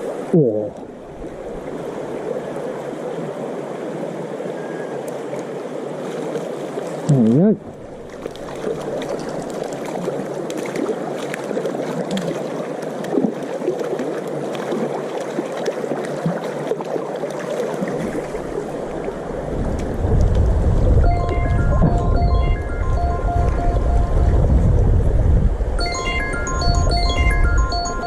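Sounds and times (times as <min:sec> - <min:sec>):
river water gurgling: 0:00.0 - 0:24.0
small water splashes: 0:05.1 - 0:20.4
low wind rumble on microphone: 0:18.0 - 0:28.0.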